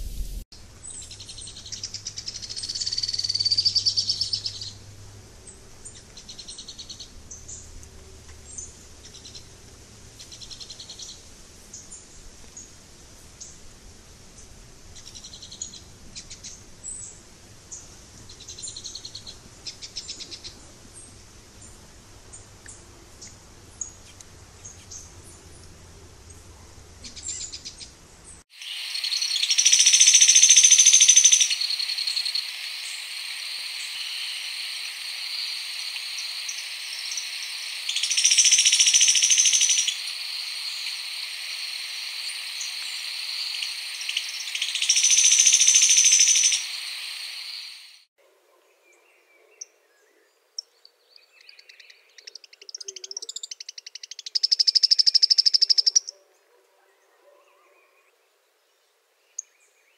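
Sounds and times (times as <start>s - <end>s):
bird trilling: 1.0s - 4.8s, 28.6s - 48.0s, 52.3s - 56.1s.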